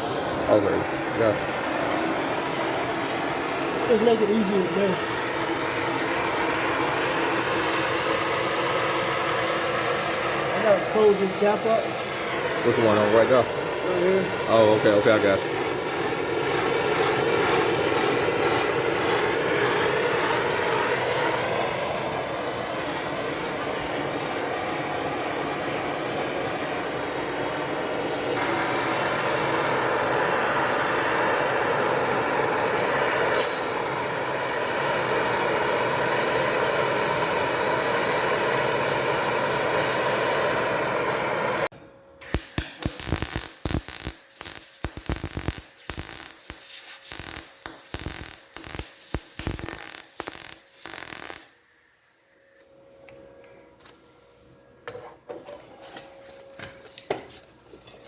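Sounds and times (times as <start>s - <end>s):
welding torch hissing: 0.0s - 52.7s
welding crackling: 12.6s - 23.8s, 42.2s - 51.6s.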